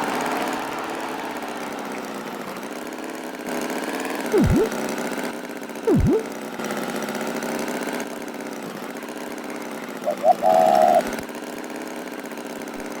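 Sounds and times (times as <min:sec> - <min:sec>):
short high tone: 0:04.4 - 0:04.7, 0:05.9 - 0:06.3.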